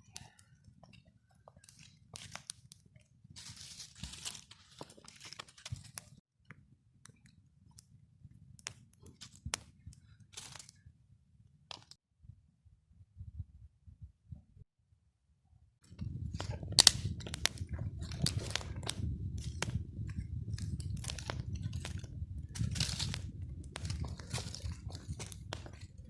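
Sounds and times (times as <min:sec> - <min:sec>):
rustling and crunching: 0:01.6 - 0:02.7, 0:03.3 - 0:06.2, 0:09.1 - 0:10.8, 0:15.9 - 0:26.0
low steady rumble: 0:15.8 - 0:26.0
sharp snaps: 0:16.4 - 0:19.8.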